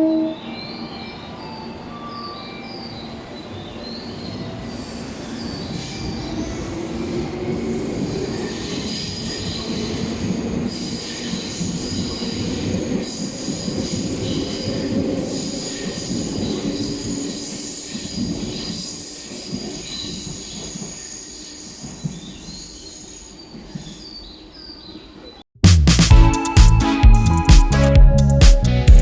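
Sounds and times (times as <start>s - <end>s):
train rumble: 0.0s - 21.0s
train wheels squealing: 0.2s - 23.4s.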